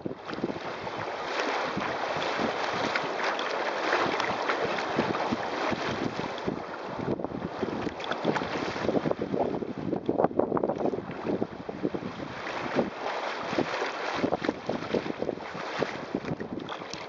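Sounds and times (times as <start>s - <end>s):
water splashing against hull: 0.0s - 17.0s
wind buffeting microphone: 0.0s - 17.0s.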